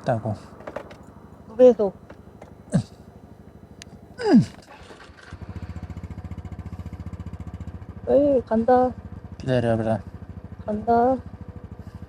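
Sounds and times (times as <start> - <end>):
motorcycle engine idling: 0.0 - 12.0
short falling vocal sound: 4.2 - 4.7.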